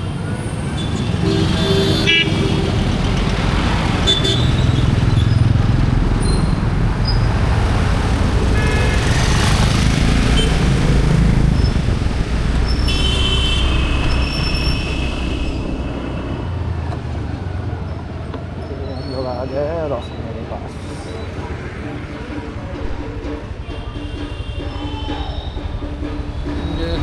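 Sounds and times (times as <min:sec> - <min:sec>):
vehicle horns honking: 0:00.0 - 0:03.2, 0:04.0 - 0:04.8, 0:08.4 - 0:11.8, 0:12.6 - 0:16.4, 0:23.5 - 0:26.8
road traffic rumble: 0:00.0 - 0:27.0.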